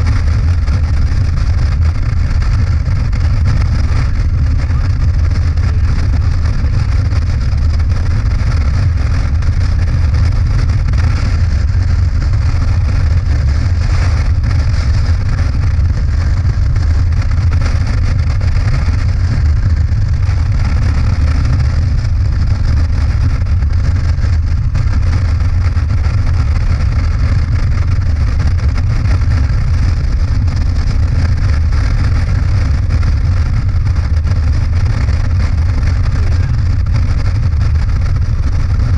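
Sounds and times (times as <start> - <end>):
motorcycle engine running: 0.0 - 38.9
wind noise: 0.0 - 38.9.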